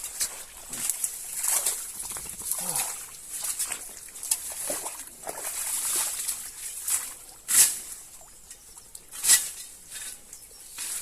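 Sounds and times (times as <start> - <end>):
squelching in mud: 0.1 - 7.3.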